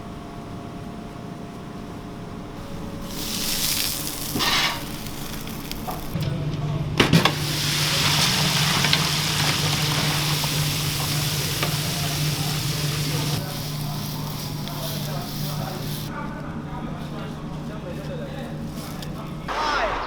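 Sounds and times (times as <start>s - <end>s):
steady low hum: 0.0s - 20.0s
chicken sizzling in oil: 3.0s - 6.2s, 7.0s - 16.1s.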